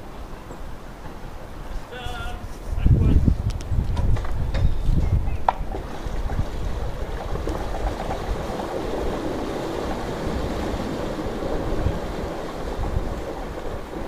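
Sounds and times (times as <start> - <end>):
wind: 0.0 - 14.0
churning water rushing: 5.2 - 14.0.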